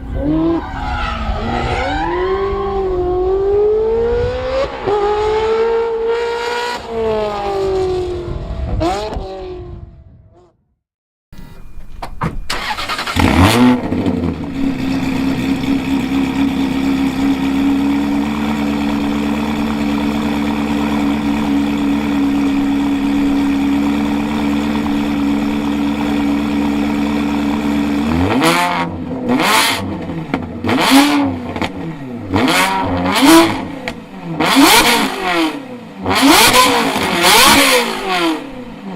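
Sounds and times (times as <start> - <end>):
sports car engine revving and idling: 13.2 - 38.9.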